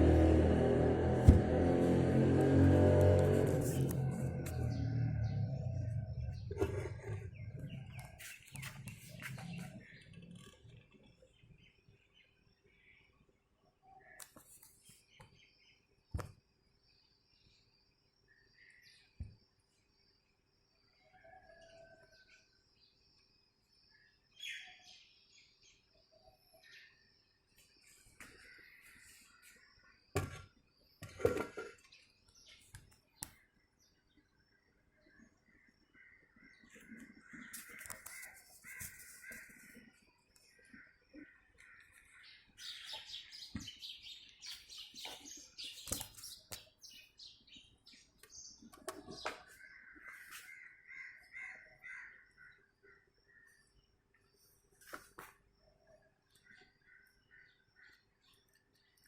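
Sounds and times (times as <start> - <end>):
sharp knocks: 1.2 - 1.8
birds chirping: 2.7 - 13.2, 35.1 - 52.2
faint bird chirps: 4.4 - 22.3.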